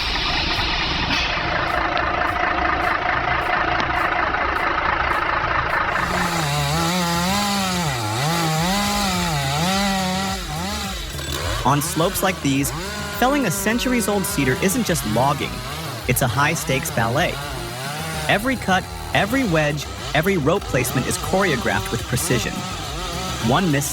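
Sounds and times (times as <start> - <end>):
chainsaw cutting wood: 0.0 - 23.9.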